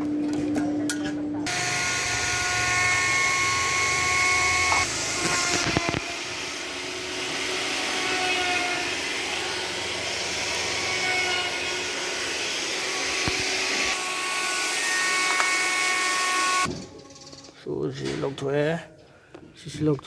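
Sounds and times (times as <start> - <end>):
power tool whining: 1.5 - 16.7.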